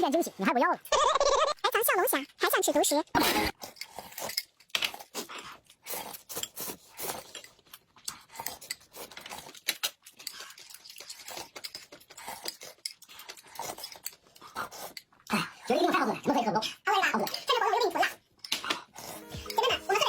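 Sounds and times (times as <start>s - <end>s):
chewing and biting: 3.5s - 15.5s.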